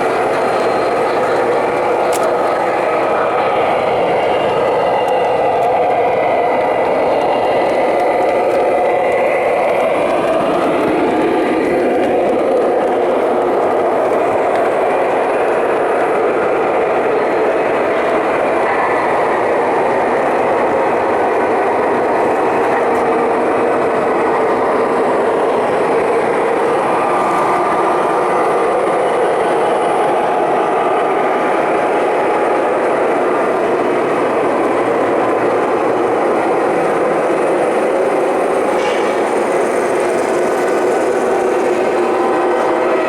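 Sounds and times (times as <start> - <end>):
model train running on track: 0.0 - 43.0.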